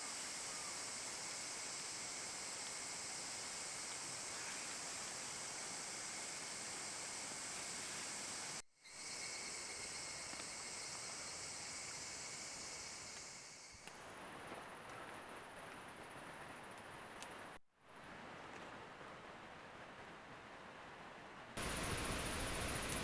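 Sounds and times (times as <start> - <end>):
high-pitched insect chorus: 0.0 - 13.9, 21.6 - 23.0
constant hiss: 0.0 - 23.0.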